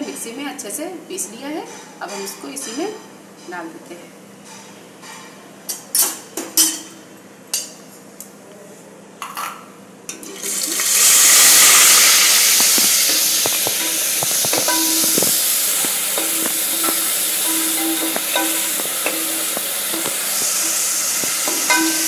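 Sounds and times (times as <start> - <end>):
metal utensils clinking: 9.2 - 22.0
paste sizzling in hot oil: 10.4 - 22.0.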